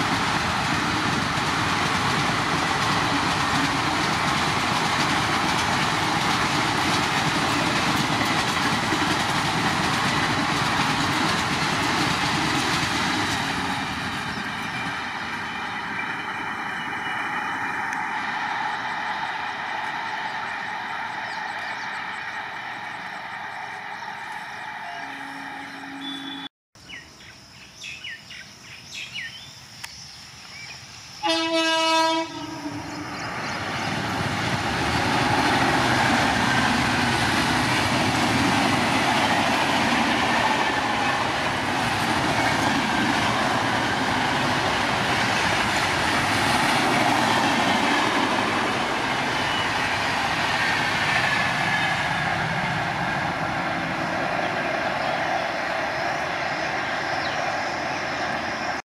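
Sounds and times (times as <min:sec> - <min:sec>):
passenger train passing at speed: 0:00.0 - 0:27.0, 0:30.4 - 0:58.8
locomotive horn blast: 0:24.8 - 0:26.5, 0:31.2 - 0:33.0.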